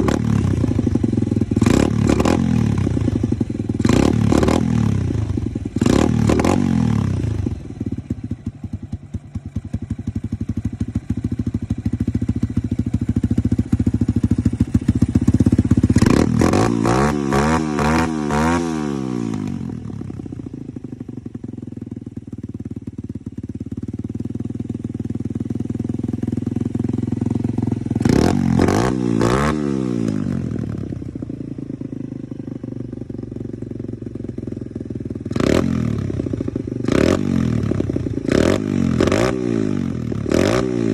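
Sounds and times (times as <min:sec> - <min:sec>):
dirt bike engine revving: 0:00.0 - 0:00.8, 0:01.6 - 0:03.2, 0:03.8 - 0:07.5, 0:15.7 - 0:19.6, 0:28.0 - 0:30.6, 0:35.3 - 0:40.9.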